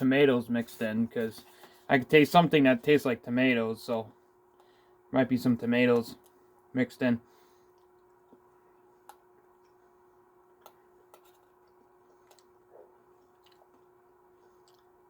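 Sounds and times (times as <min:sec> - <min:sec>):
faint steady hum: 0:00.0 - 0:15.0
clicks eating from plastic bowl: 0:10.5 - 0:12.6.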